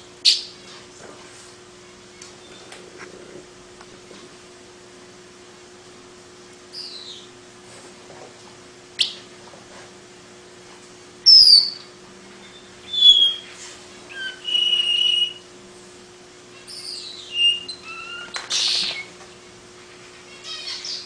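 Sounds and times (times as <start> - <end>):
bird whistling notes: 6.7 - 7.3, 11.2 - 13.5, 14.1 - 15.4, 16.7 - 19.1.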